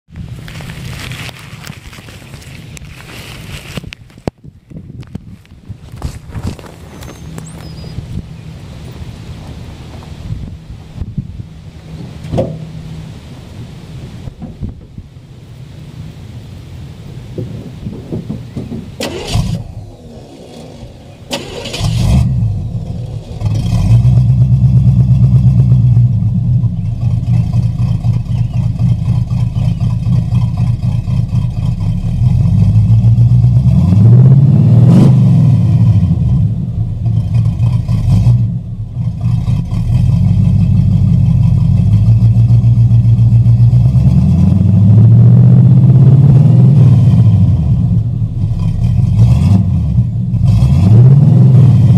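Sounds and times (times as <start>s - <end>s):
v eight engine starting and idling: 18.2s - 44.9s
engine revving: 18.6s - 51.9s.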